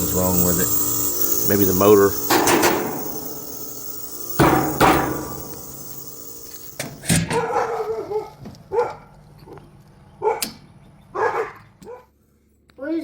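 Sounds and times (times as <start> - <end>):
loud ringing bang: 0.0 - 7.4
dog barking: 7.3 - 9.1, 10.2 - 12.1.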